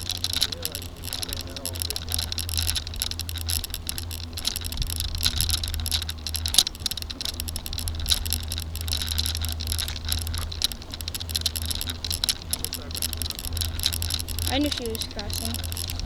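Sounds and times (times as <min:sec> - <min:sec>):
bicycle rattling and clicking: 0:00.0 - 0:16.0
low rumble: 0:00.0 - 0:16.0.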